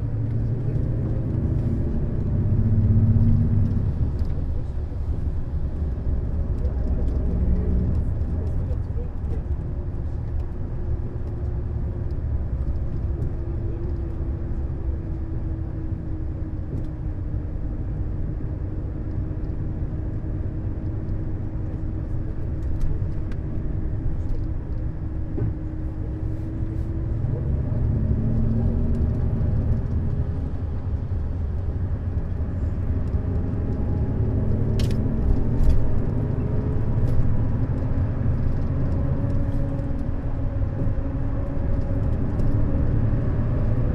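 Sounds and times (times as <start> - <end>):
engine and road rumble: 0.0 - 43.9.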